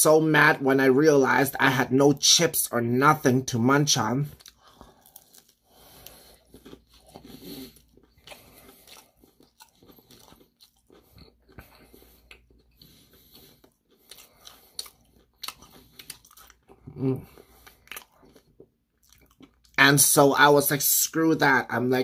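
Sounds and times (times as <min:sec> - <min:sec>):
person chewing crispy fried chicken: 0:04.2 - 0:19.8.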